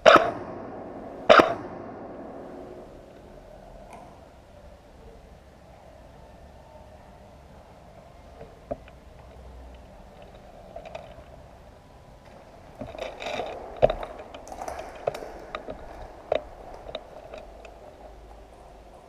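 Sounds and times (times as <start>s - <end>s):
sharp clicks: 1.3s - 1.8s
scraping and rustling: 12.2s - 19.0s.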